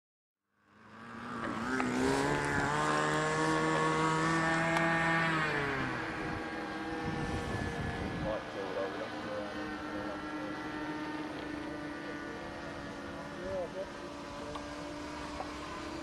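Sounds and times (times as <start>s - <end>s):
engine running: 0.6s - 16.0s.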